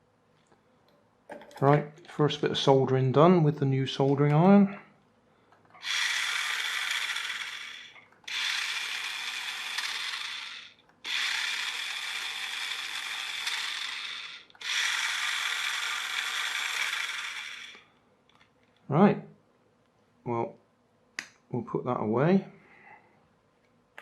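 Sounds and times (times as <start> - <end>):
small electric motor whirring: 5.8 - 17.9.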